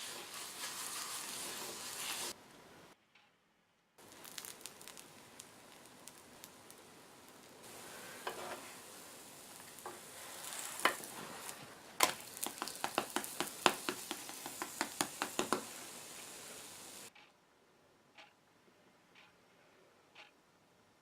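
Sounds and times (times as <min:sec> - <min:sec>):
batter sizzling in a frying pan: 0:00.0 - 0:02.4, 0:04.0 - 0:17.1.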